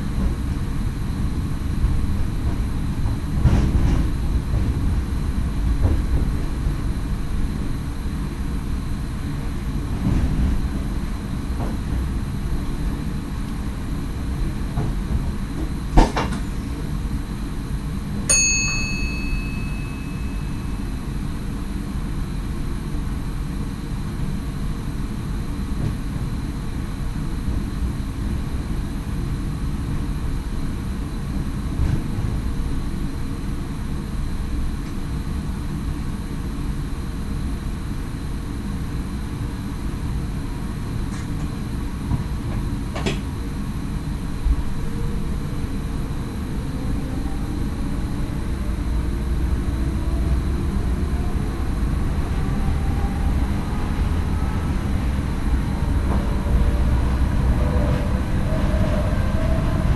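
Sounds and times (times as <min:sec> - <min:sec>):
train running rumble: 0:00.0 - 0:59.9
bell-like ding: 0:18.3 - 0:21.0.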